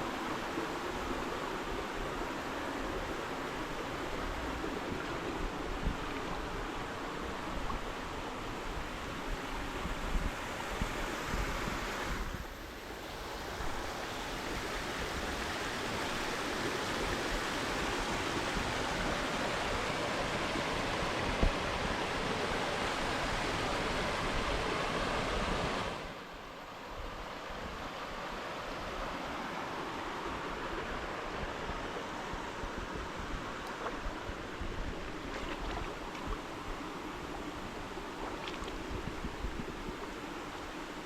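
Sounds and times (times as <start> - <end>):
stream rushing over rocks: 13.2 - 26.2.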